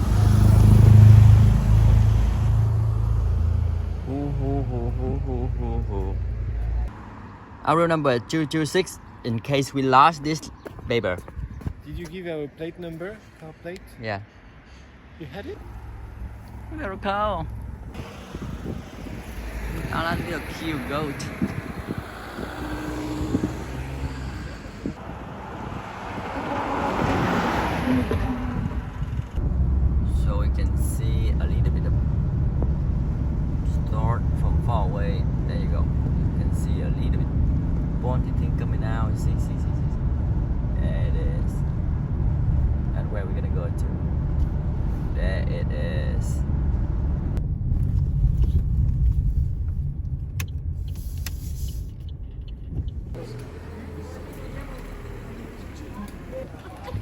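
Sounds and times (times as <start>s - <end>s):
car road and engine noise: 0.0s - 57.0s
rushing noise: 17.7s - 33.5s.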